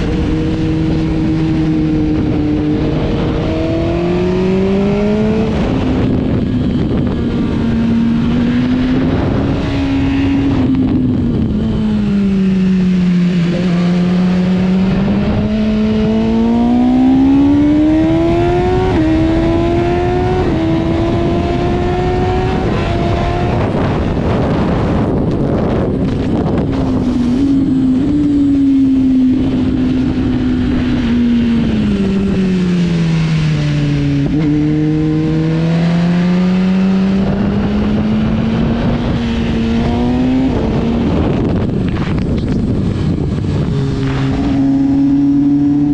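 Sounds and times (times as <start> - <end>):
motorcycle engine accelerating: 0.0 - 45.9
wind rush: 0.0 - 45.9.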